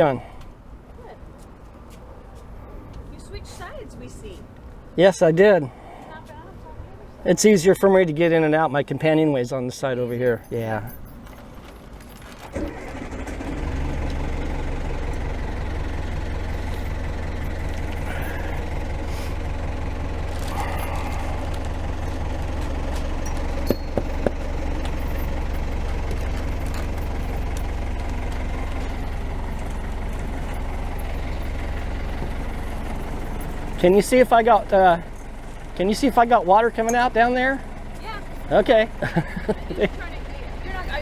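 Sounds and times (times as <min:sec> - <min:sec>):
diesel engine starting and running: 0:10.9 - 0:41.0.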